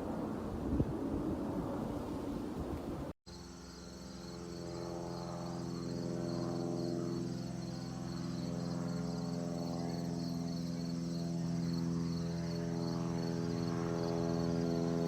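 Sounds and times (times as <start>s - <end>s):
propeller aircraft engine drone: 0.0s - 15.0s
crickets chirping: 3.3s - 15.0s.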